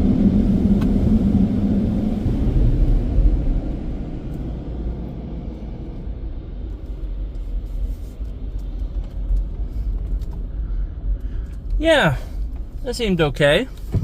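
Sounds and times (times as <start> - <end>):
car wash low rumble: 0.0 - 14.0.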